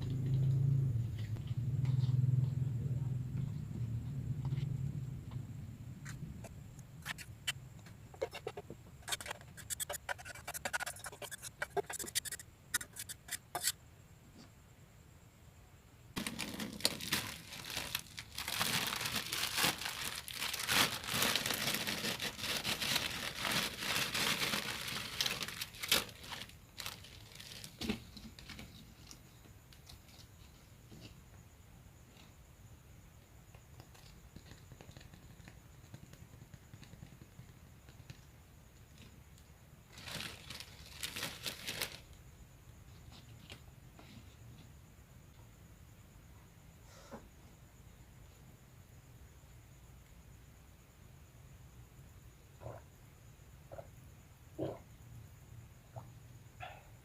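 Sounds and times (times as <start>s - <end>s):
dry crinkling and crackling: 16.2s - 29.2s.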